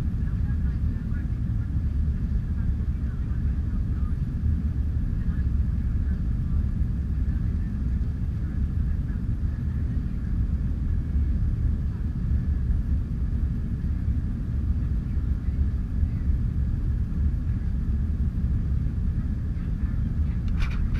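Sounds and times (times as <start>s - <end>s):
faint steady whine: 0.0s - 20.9s
jet engines and airflow rumble: 0.0s - 20.9s.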